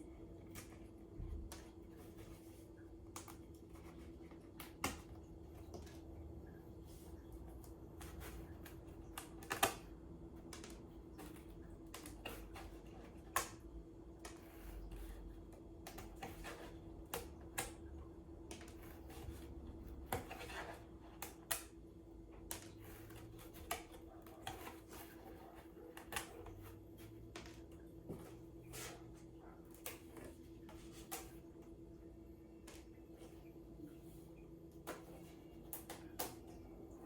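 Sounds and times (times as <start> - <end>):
faint steady hum: 0.0 - 37.0
cardboard pieces tapping and clicking: 3.1 - 6.1, 7.6 - 21.8.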